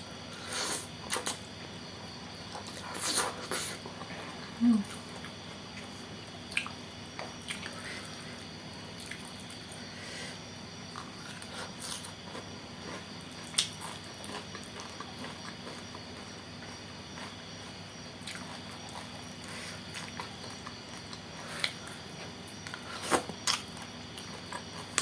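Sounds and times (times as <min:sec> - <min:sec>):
faint steady hum: 0:00.0 - 0:25.0
wet chewing and smacking: 0:08.9 - 0:09.8, 0:10.9 - 0:25.0.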